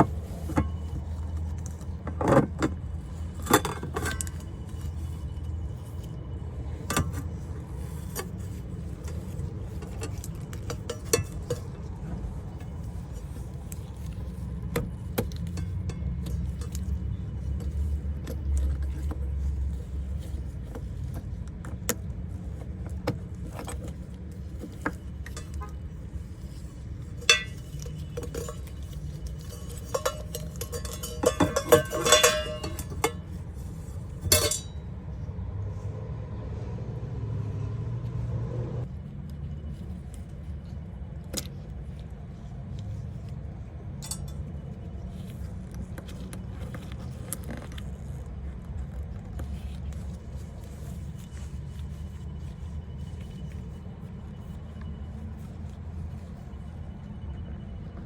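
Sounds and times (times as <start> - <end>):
steady low hum: 0.0 - 36.5, 38.0 - 58.0
metal tools clinking: 26.6 - 34.8, 44.0 - 44.6.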